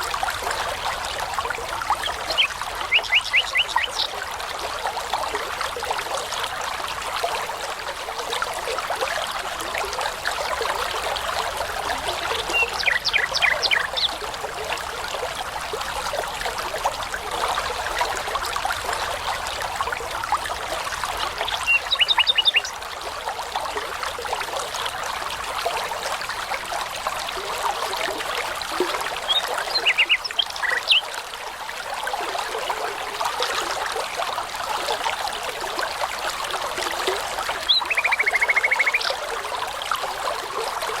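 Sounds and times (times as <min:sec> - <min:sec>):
brook trickling: 0:00.0 - 0:41.0
songbirds singing: 0:02.0 - 0:04.2, 0:12.4 - 0:14.2, 0:21.4 - 0:22.8, 0:29.2 - 0:31.1, 0:37.6 - 0:39.2.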